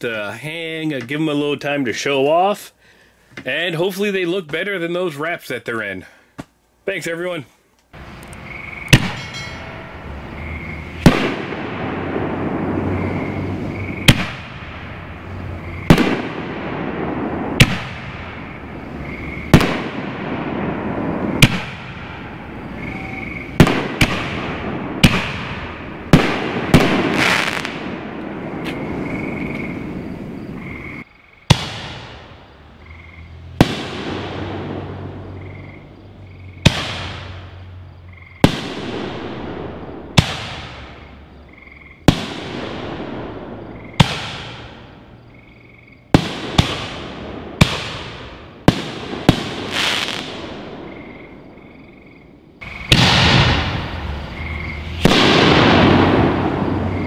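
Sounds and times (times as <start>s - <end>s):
firework booms with echoing rumble: 8.9s - 30.6s, 31.5s - 32.6s, 33.6s - 35.5s, 36.6s - 37.6s, 38.4s - 41.3s, 42.0s - 45.3s, 46.1s - 51.6s, 52.6s - 57.0s.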